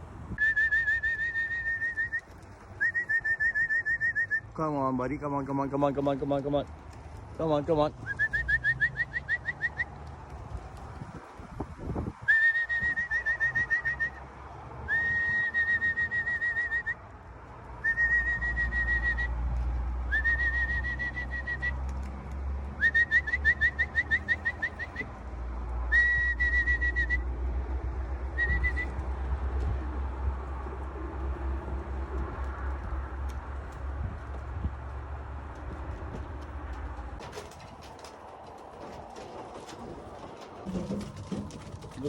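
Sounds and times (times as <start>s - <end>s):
high trilling whistle blasts: 0.4s - 2.2s.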